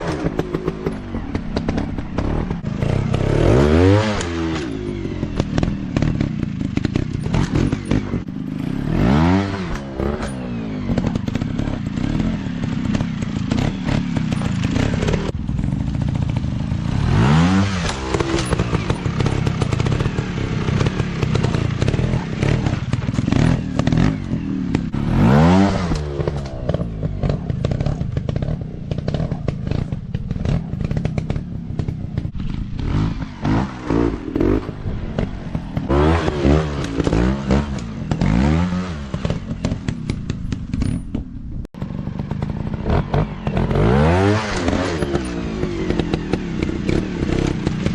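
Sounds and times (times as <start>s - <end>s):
dirt bike engine revving: 0.0s - 47.9s
rattling and knocking clatter: 25.9s - 35.9s, 39.1s - 43.8s.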